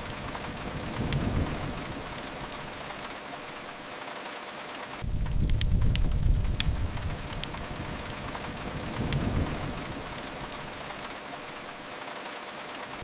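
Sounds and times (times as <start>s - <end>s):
sharp crackling clicks: 0.0s - 12.7s
rain on a window: 0.0s - 13.0s
low rumble: 5.0s - 10.8s.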